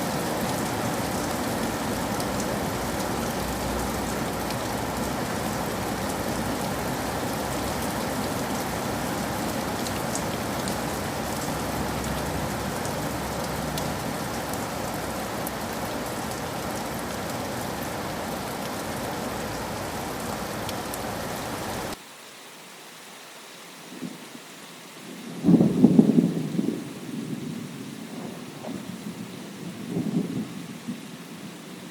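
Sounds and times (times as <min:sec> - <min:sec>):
steady rain: 0:00.0 - 0:31.9
loud rumble of thunder: 0:25.4 - 0:31.0.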